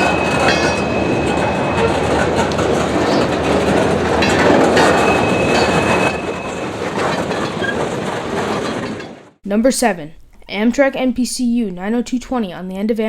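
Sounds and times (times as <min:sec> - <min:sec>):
high wheel squeal: 0:00.0 - 0:09.2
train cars rumbling on rails: 0:00.0 - 0:09.4.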